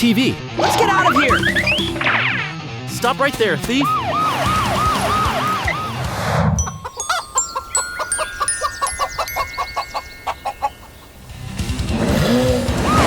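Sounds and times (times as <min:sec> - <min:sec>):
siren wailing: 0:03.8 - 0:07.2, 0:12.8 - 0:13.0
high chiming notes: 0:03.9 - 0:11.3
chicken clucking: 0:06.6 - 0:11.2.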